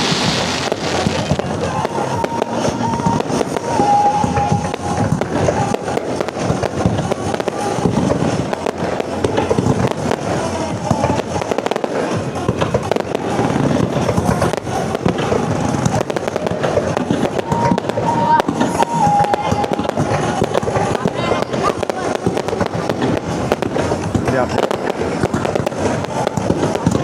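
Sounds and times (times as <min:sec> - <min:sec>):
fireworks bursting and crackling: 0:00.0 - 0:27.0.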